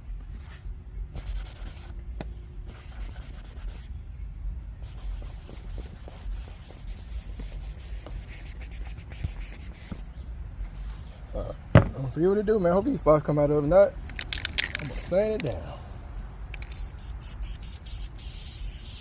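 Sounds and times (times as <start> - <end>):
hand rubbing a surface: 4.8 - 11.2.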